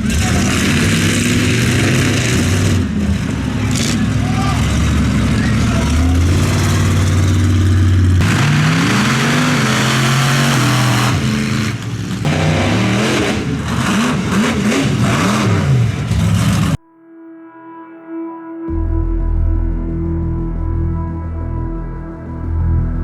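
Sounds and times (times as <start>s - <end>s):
truck engine revving hard: 0.0s - 16.8s
quiet steady music tone: 16.8s - 23.0s.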